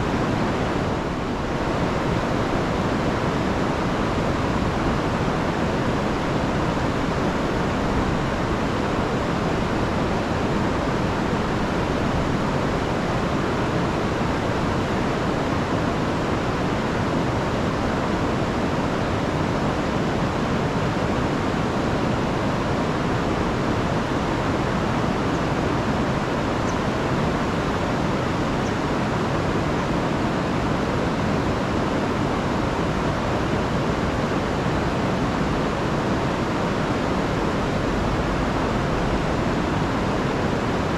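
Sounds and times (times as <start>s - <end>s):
river rushing over falls: 0.0s - 40.9s.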